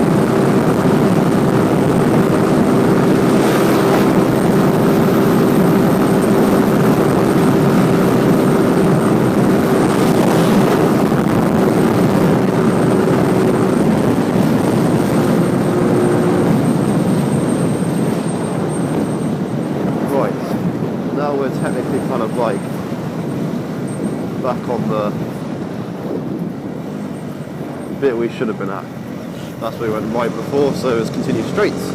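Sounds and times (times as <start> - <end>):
motorcycle engine running: 0.0 - 19.7
rushing noise: 0.0 - 31.9.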